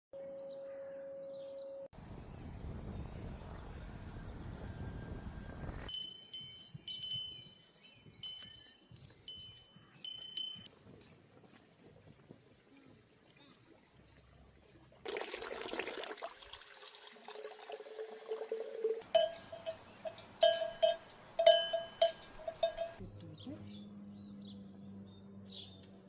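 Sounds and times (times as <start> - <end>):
small bells clinking: 5.9 - 10.7, 18.3 - 23.0
liquid pouring into container: 15.0 - 19.0.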